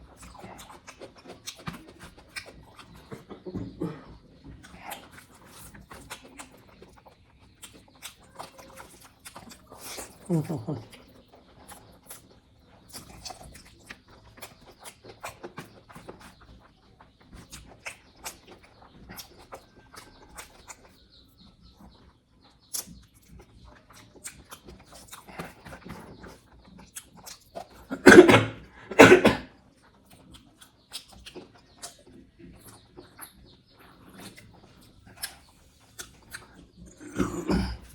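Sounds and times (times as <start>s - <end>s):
lip smacks and chewing: 0.0s - 37.9s
short throaty sounds: 27.9s - 29.4s.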